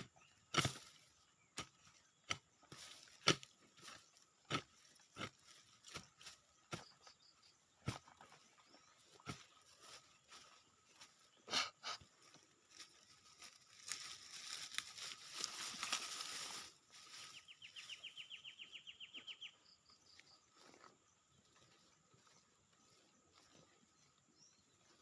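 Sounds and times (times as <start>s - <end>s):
rustling: 12.7s - 17.9s.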